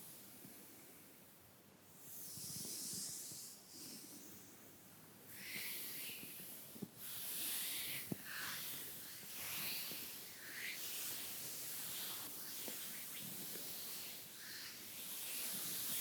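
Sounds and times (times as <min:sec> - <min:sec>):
makeup brush swishing on skin: 0:05.6 - 0:16.0.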